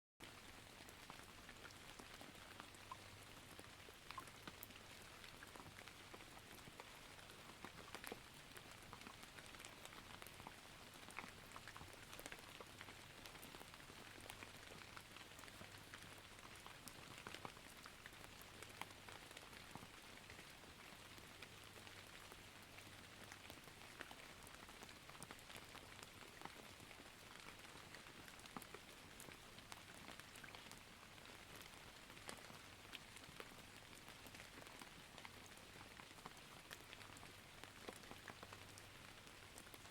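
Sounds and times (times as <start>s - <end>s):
faint rain patter: 0.2s - 39.9s.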